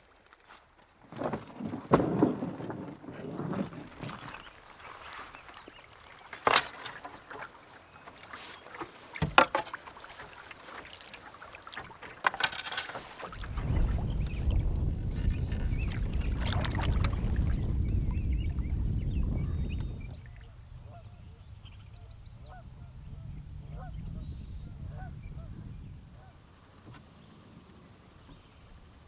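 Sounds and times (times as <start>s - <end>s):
paddle splashing in water: 1.1s - 23.0s
paddle knocking on hull: 3.6s - 20.5s.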